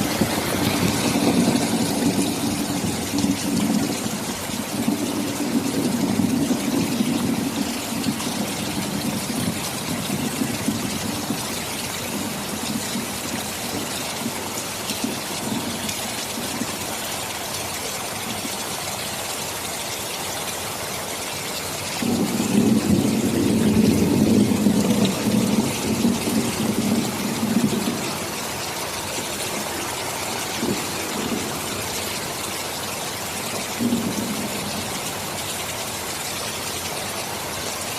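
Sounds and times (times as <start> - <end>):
thunder rumble: 0.0 - 16.8, 22.0 - 35.4
heavy rain: 0.0 - 37.9.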